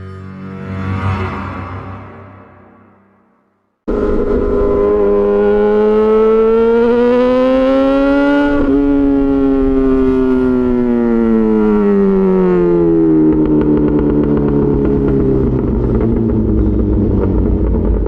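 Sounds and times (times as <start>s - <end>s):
motorcycle engine revving: 3.9s - 18.0s.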